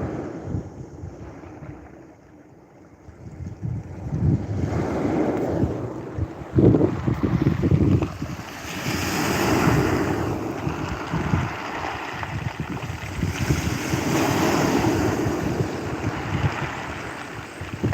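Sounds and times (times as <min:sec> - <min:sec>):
wind gusting on microphone: 0:00.0 - 0:02.3, 0:03.0 - 0:17.9
ocean waves breaking on beach: 0:04.4 - 0:17.9.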